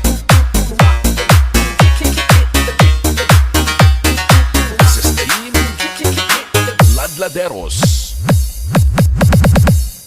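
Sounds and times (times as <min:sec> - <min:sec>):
booming bass kicks: 0:00.0 - 0:05.2, 0:06.8 - 0:07.1
electronic dance music: 0:00.0 - 0:10.0.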